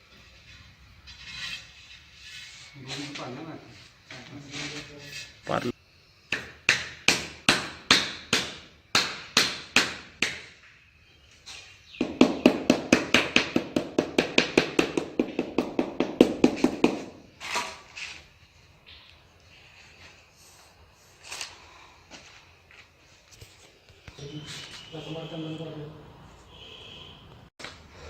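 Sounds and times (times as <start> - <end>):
tool tapping tiles: 12.0 - 17.2.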